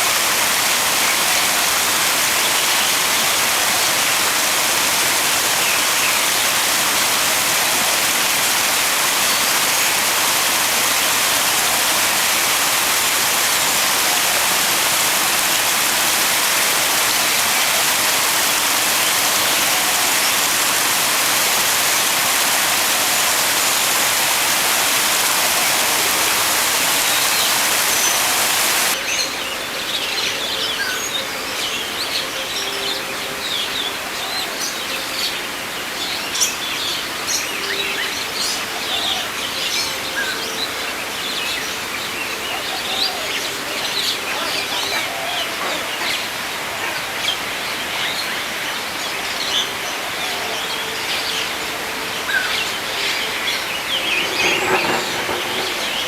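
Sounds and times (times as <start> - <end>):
loud rushing hiss: 0.0 - 29.0, 51.9 - 56.0
birds chirping and twittering: 0.0 - 56.0.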